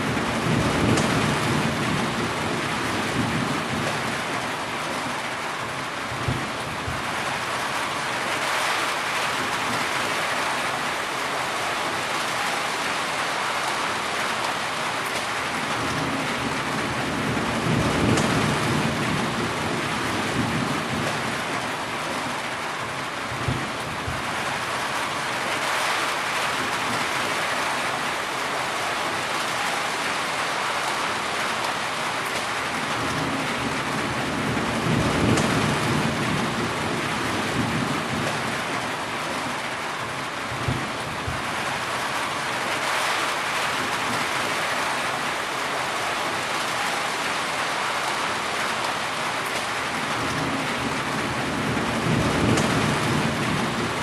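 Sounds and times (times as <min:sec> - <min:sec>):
heavy rain: 0:00.0 - 0:54.0
thunder rumbling: 0:00.1 - 0:04.2, 0:15.7 - 0:21.4, 0:32.9 - 0:38.8, 0:50.0 - 0:54.0.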